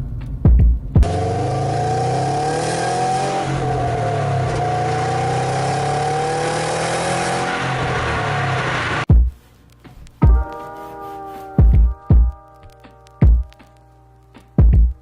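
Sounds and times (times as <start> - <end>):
low thumps: 0.0 - 1.2, 9.1 - 10.7, 11.5 - 13.8
car engine running: 0.3 - 9.1.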